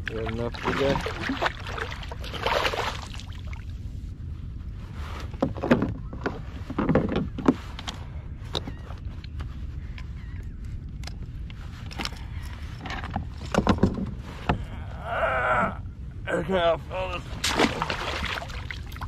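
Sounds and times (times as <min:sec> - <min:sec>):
water sloshing and splashing: 0:00.0 - 0:03.8, 0:17.2 - 0:19.0
knocks and clicks on hull: 0:05.3 - 0:09.0, 0:12.8 - 0:14.7.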